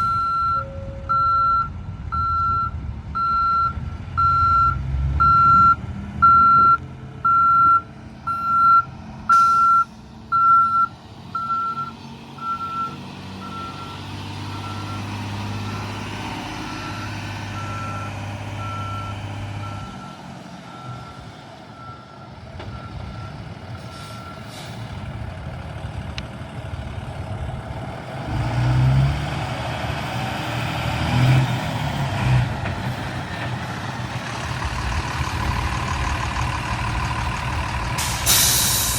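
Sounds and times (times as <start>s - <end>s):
truck reversing alarm beeps: 0.0s - 24.6s
truck engine running: 0.0s - 38.9s.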